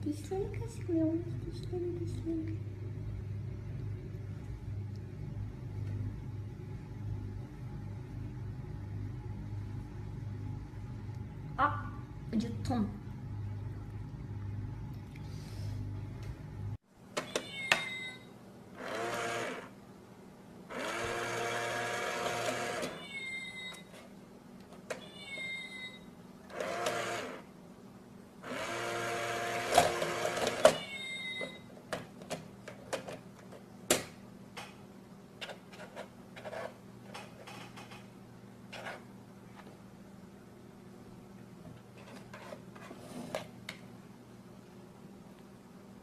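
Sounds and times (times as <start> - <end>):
small electric motor whirring: 18.8 - 19.7, 20.7 - 23.0, 26.5 - 27.4, 28.4 - 30.6.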